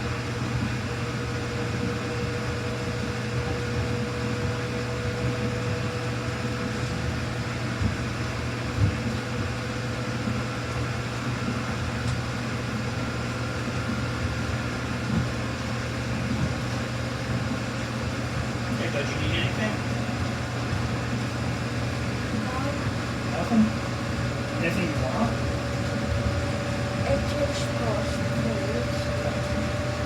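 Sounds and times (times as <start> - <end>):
washing machine motor hum: 0.0 - 30.0.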